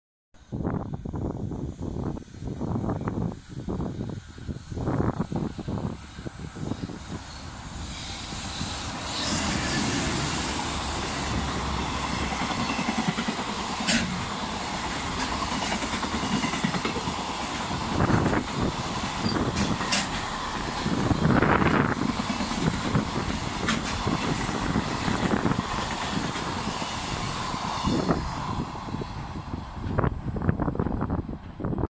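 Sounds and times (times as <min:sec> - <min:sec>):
electric locomotive passing: 0:00.4 - 0:31.9
rumble of wheels on rail: 0:00.4 - 0:31.9
wheels clacking over rail joints: 0:08.9 - 0:26.7.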